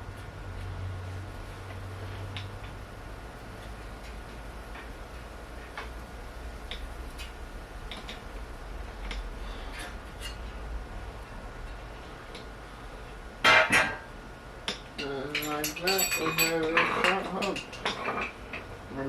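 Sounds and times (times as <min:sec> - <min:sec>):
steady low hum: 0:00.0 - 0:19.0
hand tools clicking on metal: 0:14.7 - 0:18.6.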